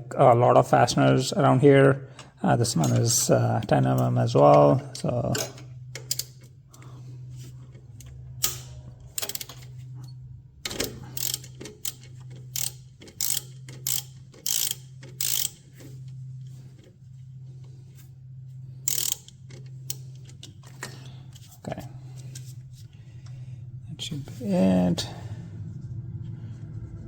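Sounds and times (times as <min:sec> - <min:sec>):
ratchet wrench clicking: 0:05.4 - 0:06.5, 0:08.4 - 0:09.7, 0:10.7 - 0:15.8, 0:18.8 - 0:20.5.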